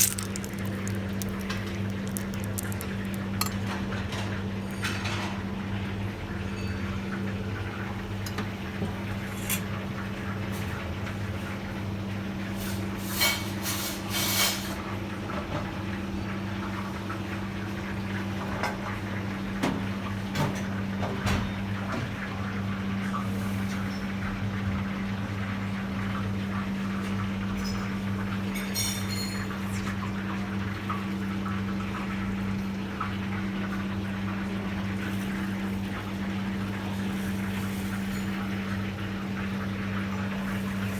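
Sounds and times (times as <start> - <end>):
dishes and utensils clinking: 0.0 - 5.4, 28.6 - 29.6
low kitchen hum: 0.0 - 14.9, 21.4 - 40.9.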